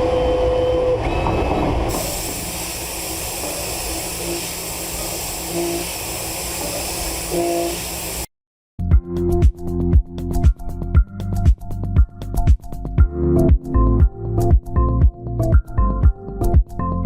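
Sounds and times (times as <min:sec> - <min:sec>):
machine hiss: 0:01.9 - 0:08.3.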